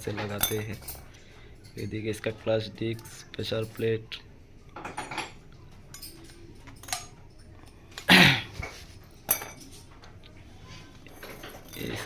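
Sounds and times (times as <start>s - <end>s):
metal clutch parts clinking: 11.1s - 12.0s.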